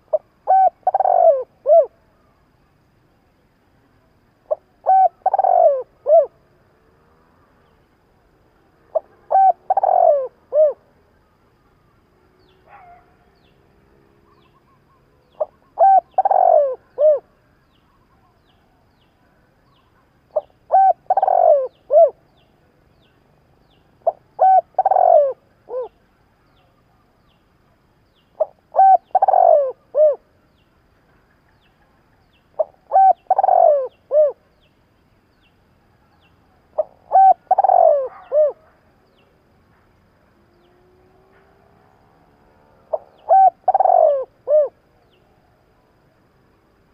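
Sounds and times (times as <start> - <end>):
dove cooing: 0.0 - 2.0, 4.5 - 6.4, 8.9 - 10.9, 14.3 - 17.3, 20.3 - 22.4, 24.0 - 26.0, 28.4 - 30.3, 32.6 - 34.5, 36.8 - 38.8, 42.9 - 44.8.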